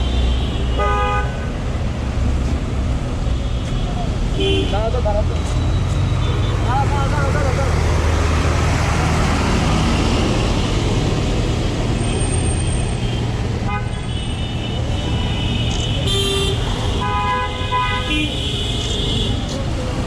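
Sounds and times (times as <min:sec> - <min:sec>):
road traffic engines: 0:00.0 - 0:20.0
car horns honking: 0:12.0 - 0:19.4.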